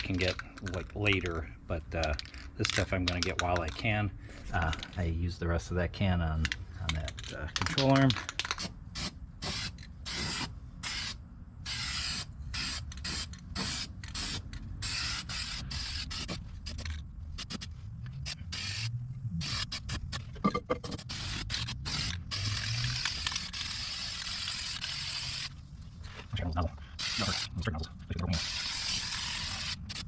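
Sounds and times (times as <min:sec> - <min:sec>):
aerosol spray can hissing: 0:20.9 - 0:25.5, 0:28.4 - 0:30.0.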